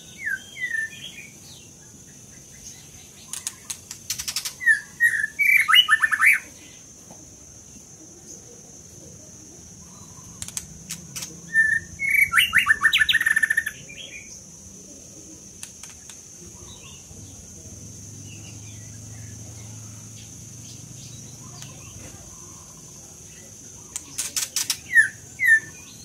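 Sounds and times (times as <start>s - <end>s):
bird singing quick repeated notes: 9.9s - 14.3s.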